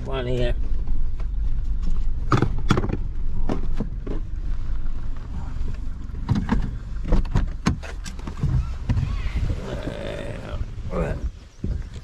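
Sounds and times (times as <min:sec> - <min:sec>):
vehicle engine rumbling: 0:00.0 - 0:12.0
car body knocking and rattling: 0:01.2 - 0:04.3, 0:06.2 - 0:08.6.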